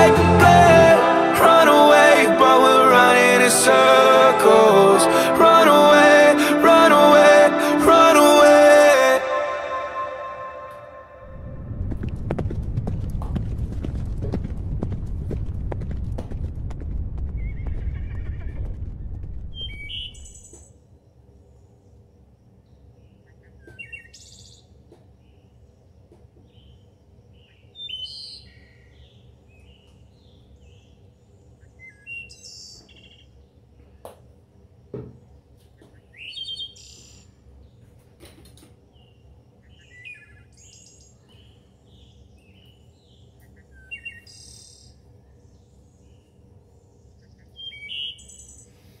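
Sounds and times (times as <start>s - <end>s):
faint low hum: 5.8s - 49.0s
songbird chirping: 19.6s - 20.8s, 22.6s - 34.2s, 35.2s - 48.7s.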